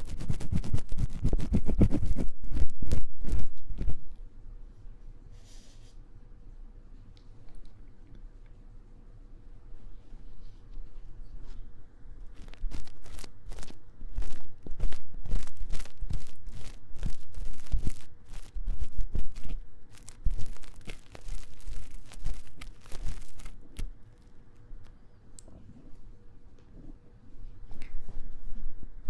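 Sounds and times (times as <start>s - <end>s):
tool scratching inside microphone ear: 0.0s - 4.1s, 12.4s - 23.9s.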